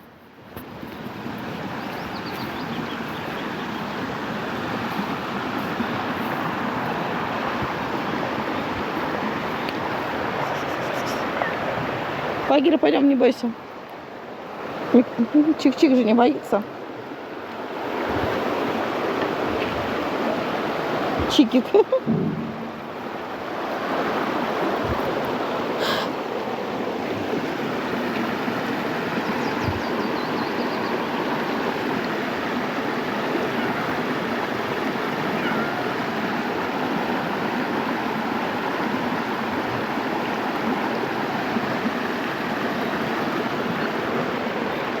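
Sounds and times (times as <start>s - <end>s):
steady rushing noise: 22.0s - 23.8s.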